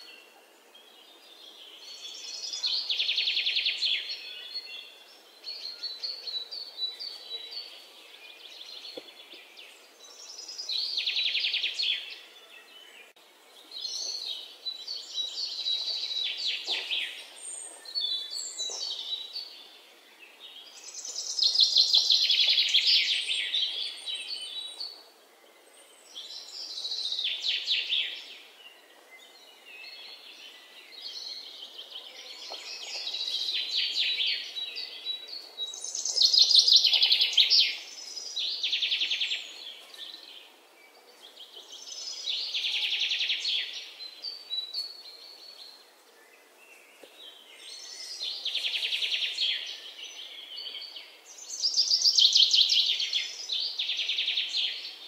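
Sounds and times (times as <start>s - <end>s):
faint background hiss: 0.0s - 55.0s.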